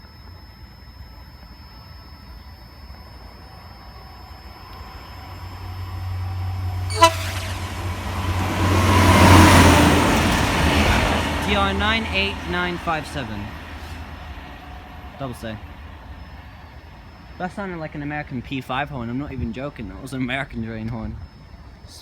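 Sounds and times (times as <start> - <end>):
diesel engine drone: 2.7 - 18.4
rush of passing train: 4.6 - 17.4
short sharp train horn: 6.7 - 12.4.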